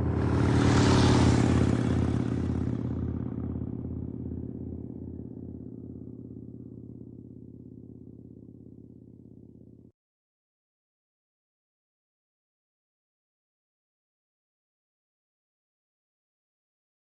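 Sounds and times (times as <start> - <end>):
motorcycle engine loping: 0.0 - 9.8.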